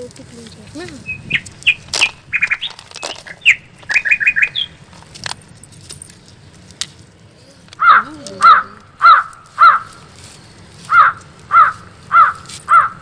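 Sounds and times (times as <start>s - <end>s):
small birds chirping: 0.0s - 13.0s
sharp clicks: 0.4s - 7.0s
crow cawing: 7.6s - 13.0s.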